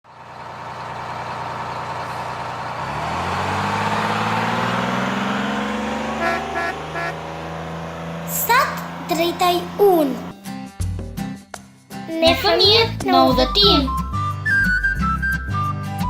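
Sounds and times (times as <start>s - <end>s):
vehicle engine speeding up: 0.6s - 10.4s
car horn toots: 6.1s - 7.2s.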